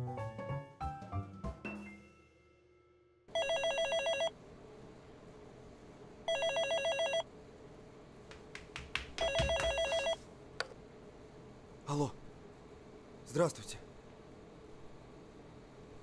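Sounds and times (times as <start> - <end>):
telephone ringing with warbling trill: 3.4 - 4.3, 6.3 - 7.2, 9.2 - 10.2.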